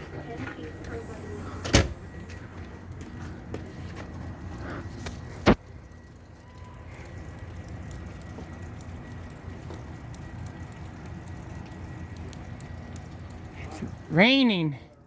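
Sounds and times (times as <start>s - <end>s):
raindrops ticking: 5.1s - 15.0s
steady rain: 5.5s - 15.0s.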